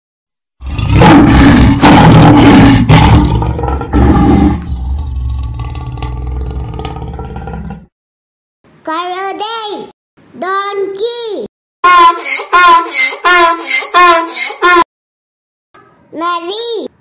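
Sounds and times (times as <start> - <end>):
low rumbling growl: 0.6 - 7.9
tiger roaring: 0.6 - 7.9.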